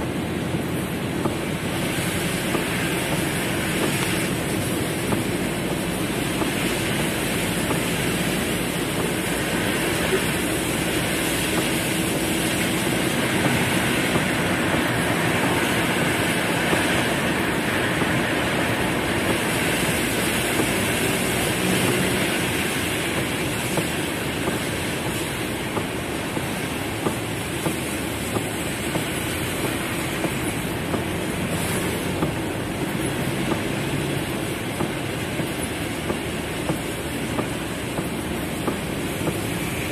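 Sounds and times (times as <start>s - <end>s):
heavy rain on car roof: 0.0s - 39.9s
sharp raindrop hits: 0.1s - 39.9s.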